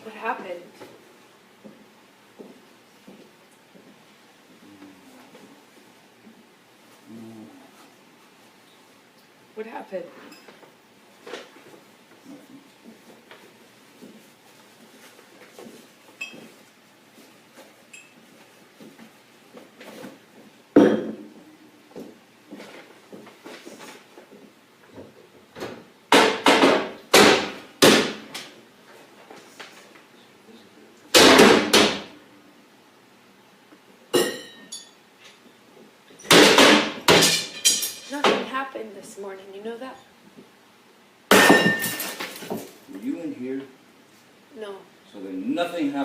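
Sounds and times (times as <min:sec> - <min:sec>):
glass clinks: 0:16.2 - 0:16.5, 0:17.9 - 0:18.2, 0:34.1 - 0:35.0, 0:41.3 - 0:42.2.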